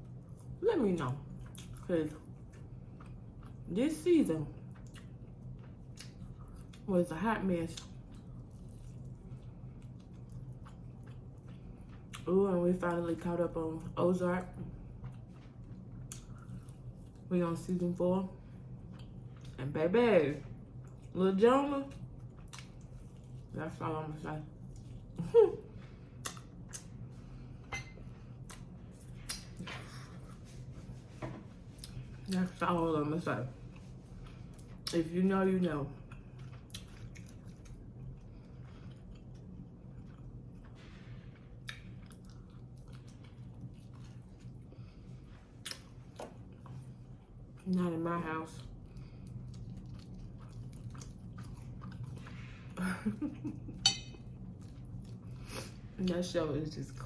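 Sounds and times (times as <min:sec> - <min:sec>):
faint low hum: 0:00.0 - 0:57.0
chewing and wet mouth clicks: 0:04.6 - 0:06.9, 0:07.7 - 0:12.3, 0:15.0 - 0:17.3, 0:21.9 - 0:23.4, 0:26.2 - 0:27.0, 0:28.4 - 0:29.6, 0:36.0 - 0:40.7, 0:41.6 - 0:44.5, 0:45.6 - 0:46.8, 0:48.6 - 0:52.4
mouth clicks and smacks chewing: 0:26.2 - 0:26.9.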